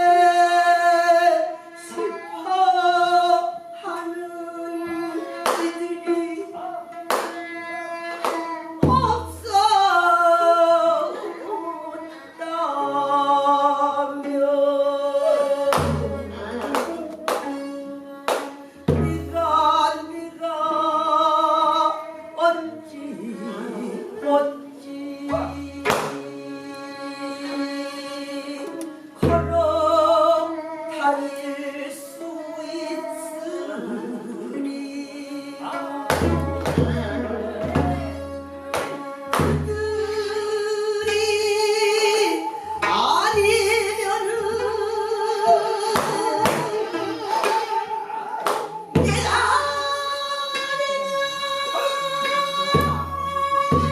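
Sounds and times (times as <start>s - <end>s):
traditional instruments accompanying: 0.0s - 53.9s
person singing with wide vibrato: 8.1s - 53.9s.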